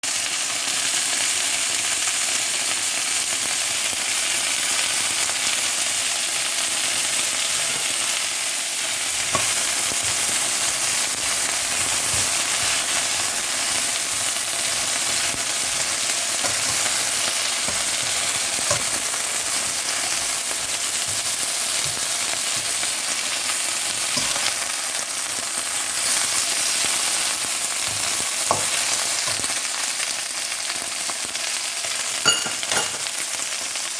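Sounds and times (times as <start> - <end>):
crabs sizzling in a pan: 0.0 - 33.9.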